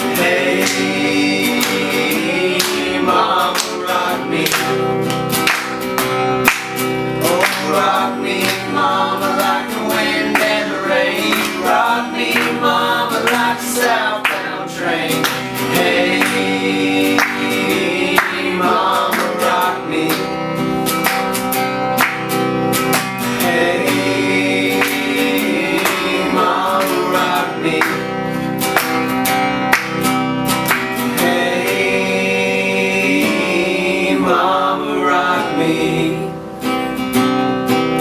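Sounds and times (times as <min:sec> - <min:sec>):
acoustic guitar strumming: 0:00.0 - 0:38.0.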